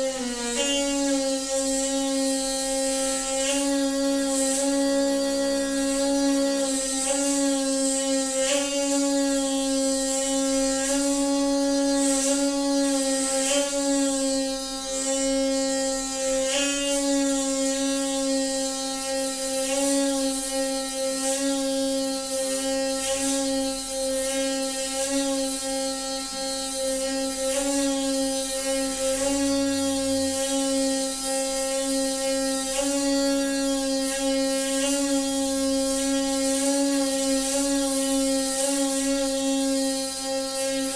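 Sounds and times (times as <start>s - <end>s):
water pipe buzzing hum: 0.0s - 40.9s.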